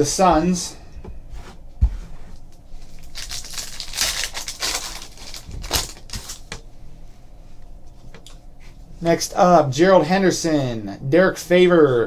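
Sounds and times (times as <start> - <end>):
wrapper crinkling and tearing: 2.9 - 6.6.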